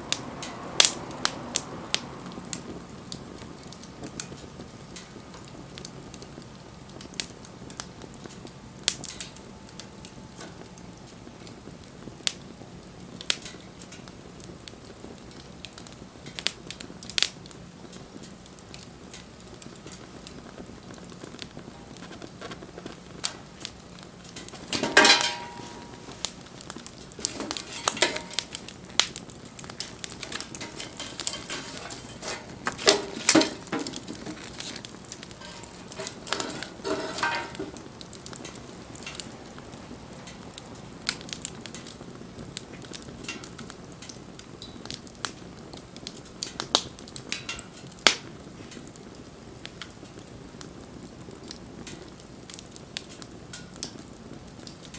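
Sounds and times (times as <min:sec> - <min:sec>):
wood fire crackling: 0:00.0 - 0:54.9
clattering knocks: 0:30.2 - 0:37.8.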